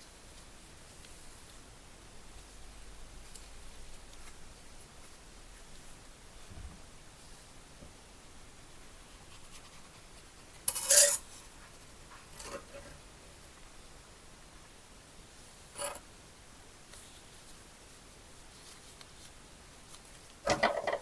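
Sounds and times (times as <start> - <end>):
hand tool scraping metal: 10.7 - 11.3, 15.8 - 16.0.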